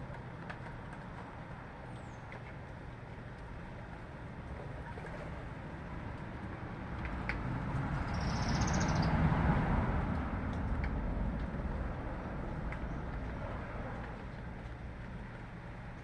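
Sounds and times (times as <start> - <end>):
vehicle passing by: 4.8 - 15.6.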